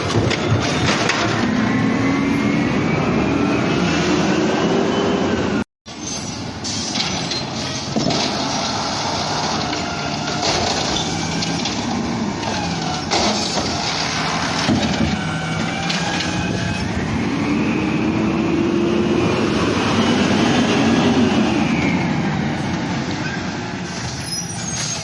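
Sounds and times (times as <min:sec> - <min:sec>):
garbage truck engine and hydraulics: 0:00.0 - 0:25.0.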